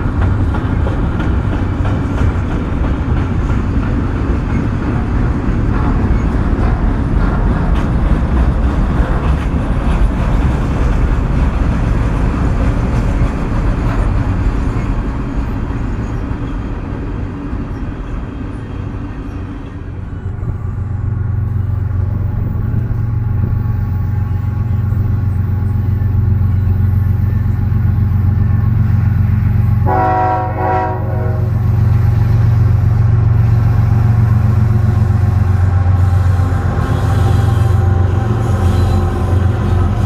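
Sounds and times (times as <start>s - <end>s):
diesel locomotive engine drone: 0.0s - 40.0s
train horn blast: 29.6s - 40.0s.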